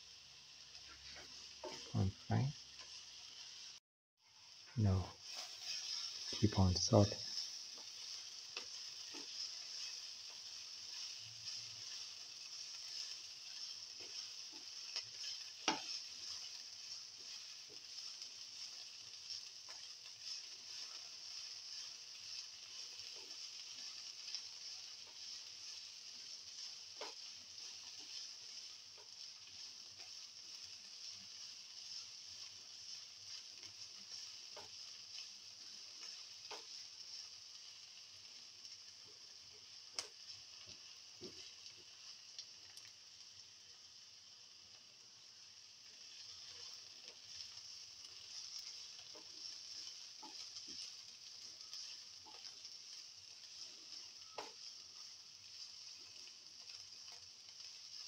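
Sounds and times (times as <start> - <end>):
vegetables sizzling in oil: 0.0 - 58.0
spatula scraping a pan: 0.8 - 1.9, 5.1 - 37.8, 46.1 - 58.0.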